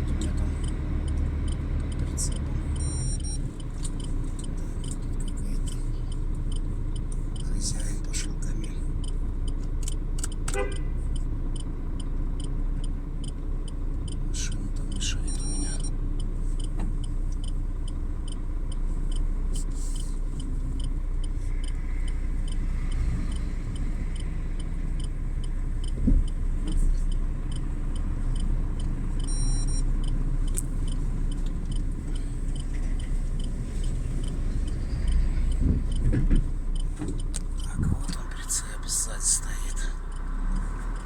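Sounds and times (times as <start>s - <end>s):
light regular ticking: 0.0s - 41.0s
truck engine idling: 0.0s - 41.0s
short high beep: 15.2s - 15.9s, 29.2s - 29.8s.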